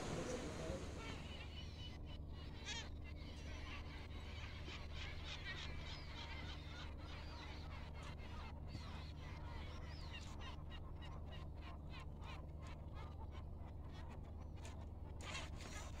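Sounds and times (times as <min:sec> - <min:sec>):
steady low hum: 0:00.0 - 0:05.9
birds chirping and trilling: 0:00.0 - 0:10.1.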